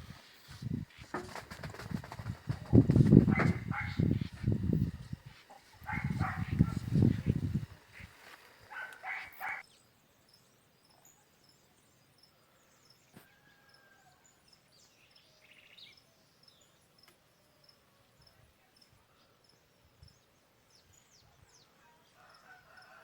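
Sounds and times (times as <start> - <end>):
loud animal calls: 2.3 - 9.6.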